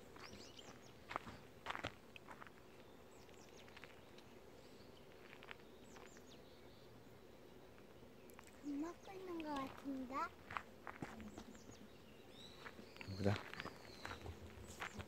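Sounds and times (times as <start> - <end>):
small birds chirping: 0.0 - 15.0
soft footsteps: 5.1 - 6.3, 7.8 - 15.0.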